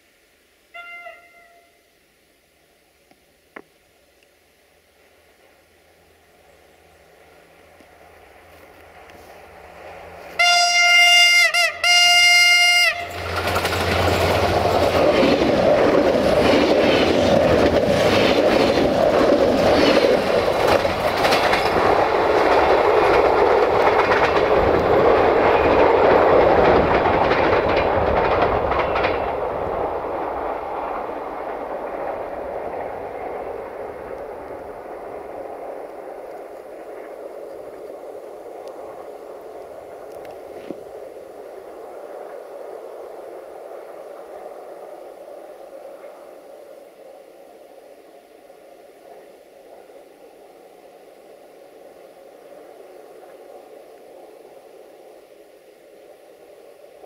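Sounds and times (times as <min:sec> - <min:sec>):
train horn blasts: 0:00.7 - 0:01.9, 0:10.3 - 0:13.3
train wheels clattering over rails: 0:12.8 - 0:38.0.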